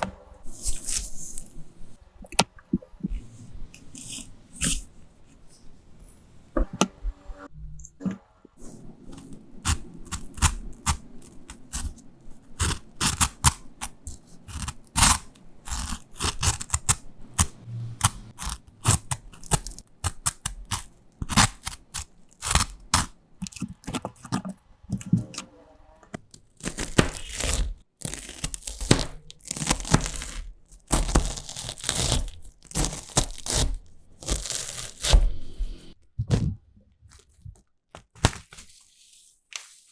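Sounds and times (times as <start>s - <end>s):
packaging crinkling and tearing: 0.5s - 1.7s, 18.4s - 25.4s, 26.2s - 35.5s, 37.1s - 38.9s
snack cracking and crunching: 9.2s - 25.3s, 26.6s - 35.2s.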